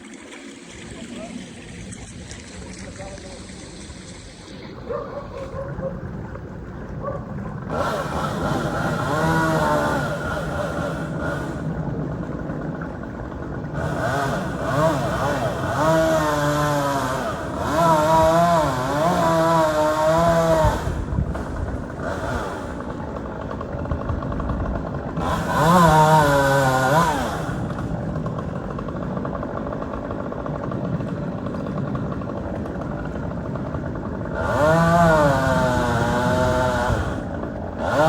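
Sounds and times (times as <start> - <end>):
chainsaw engine revving: 7.6 - 38.0.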